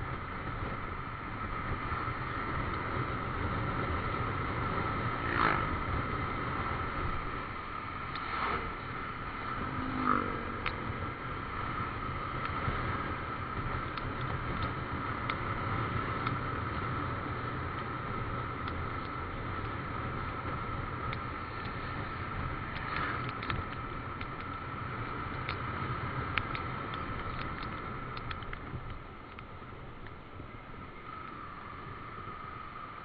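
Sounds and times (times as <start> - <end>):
motorcycle engine: 0.0 - 33.0
road and wind noise: 0.0 - 33.0
faint ticks: 22.7 - 32.6.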